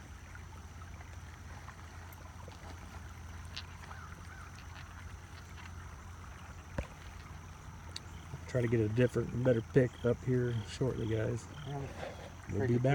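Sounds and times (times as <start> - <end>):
creek water running: 0.0 - 12.9.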